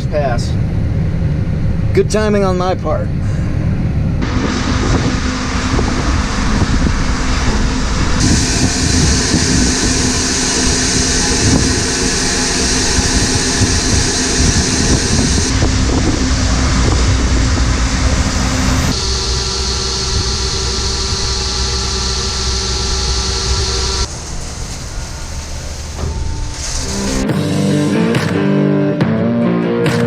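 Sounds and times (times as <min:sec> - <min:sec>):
tractor diesel engine running: 0:00.0 - 0:27.6
steady high hiss: 0:04.2 - 0:27.2.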